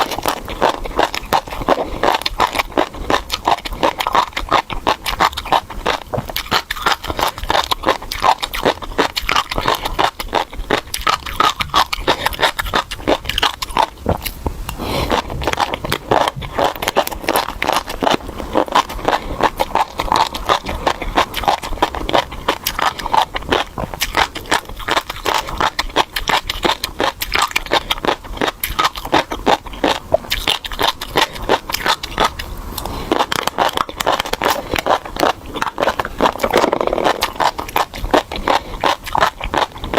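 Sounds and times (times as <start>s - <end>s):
fish roe crunching and popping: 0.0s - 39.9s.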